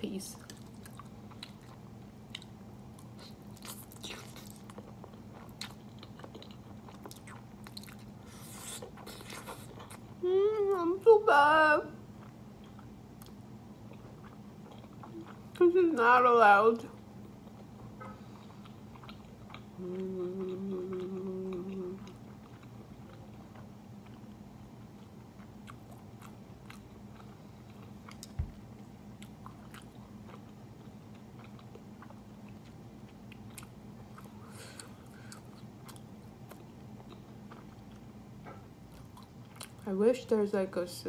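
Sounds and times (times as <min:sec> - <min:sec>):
chewing noodles: 0:00.4 - 0:10.2, 0:12.1 - 0:15.7, 0:16.9 - 0:39.8
person humming mmm: 0:10.2 - 0:11.0, 0:19.8 - 0:22.2.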